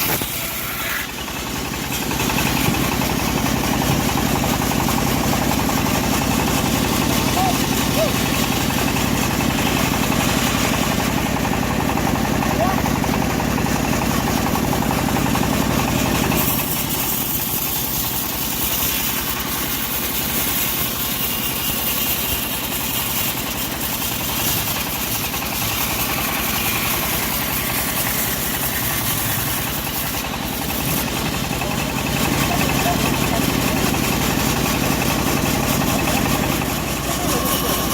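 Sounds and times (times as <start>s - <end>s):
bandsaw sawmill sawing a log: 0.0s - 37.9s.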